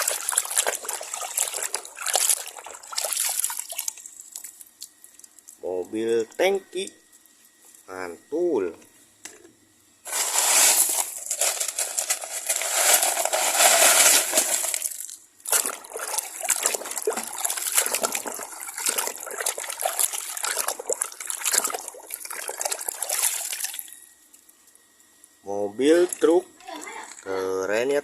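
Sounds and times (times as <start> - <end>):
running water splashing: 0.0 - 4.6, 12.0 - 23.8.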